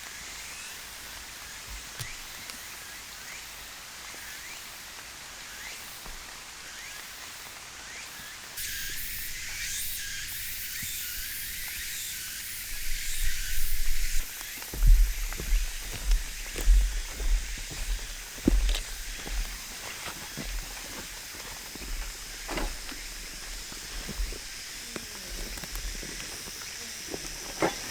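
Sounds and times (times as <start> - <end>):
steady high hiss: 8.2 - 27.9.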